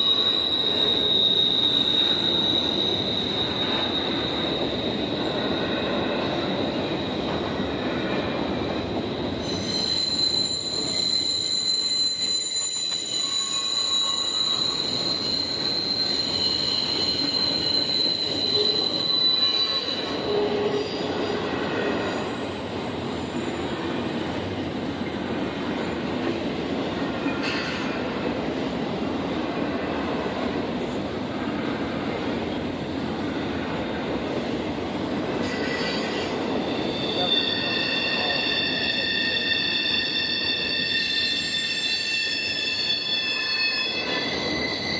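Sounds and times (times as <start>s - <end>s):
high-pitched wheel squeal: 0.0s - 23.2s, 35.3s - 44.9s
train wheels rumbling on rail: 0.0s - 44.9s.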